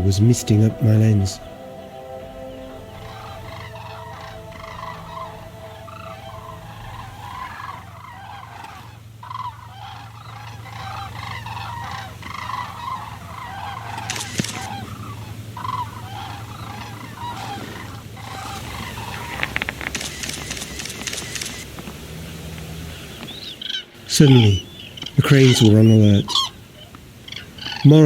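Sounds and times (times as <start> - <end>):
cranes calling: 0.0 - 21.6.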